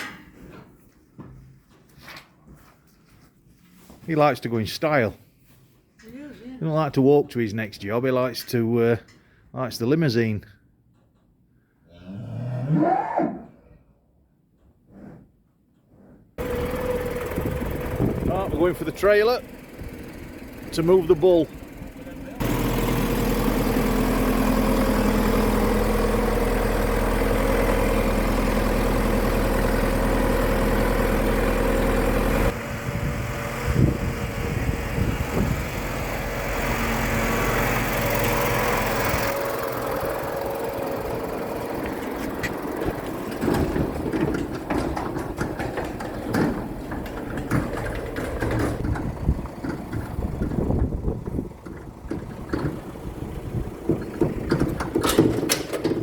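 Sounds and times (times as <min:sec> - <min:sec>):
vehicle engine running: 0:16.4 - 0:56.0
knocks and clattering: 0:41.8 - 0:53.0, 0:53.7 - 0:56.0.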